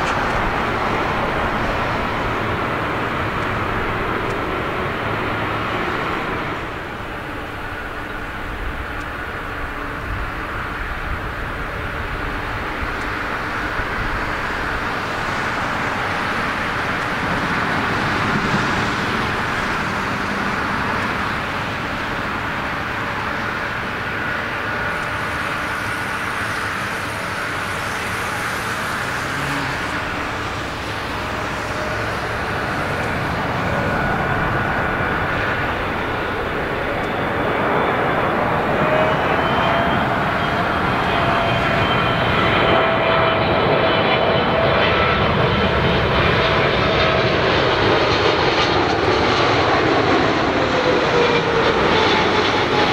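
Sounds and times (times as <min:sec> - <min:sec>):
jet engines rushing and whining: 0:00.0 - 0:52.9.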